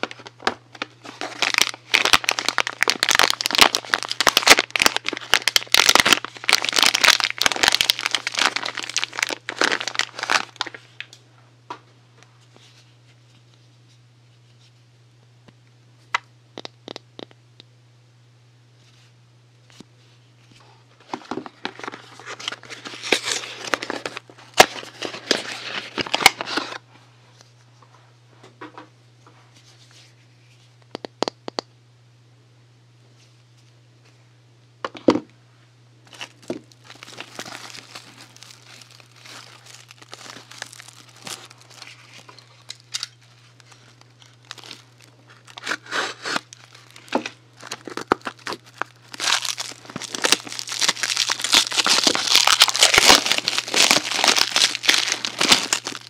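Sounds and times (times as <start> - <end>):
wrappers crinkling and tearing: 0.0 - 11.0, 21.6 - 26.8, 36.1 - 56.0
steady low hum: 0.0 - 56.0.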